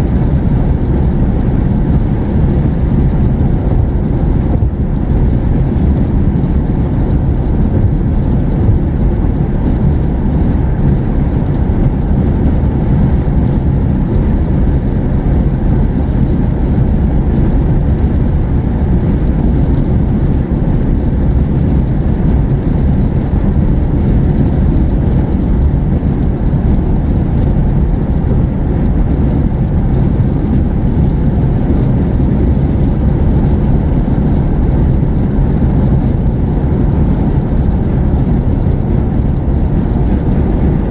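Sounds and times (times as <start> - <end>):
car driving rumble: 0.0 - 40.9.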